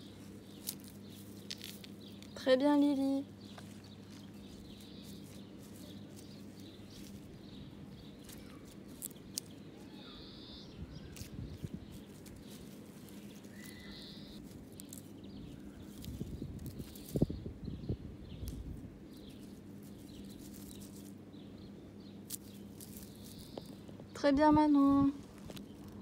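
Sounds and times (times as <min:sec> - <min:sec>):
bird chirps: 0:03.0 - 0:24.2
light rustling: 0:03.3 - 0:10.0, 0:11.0 - 0:17.4, 0:18.4 - 0:21.2.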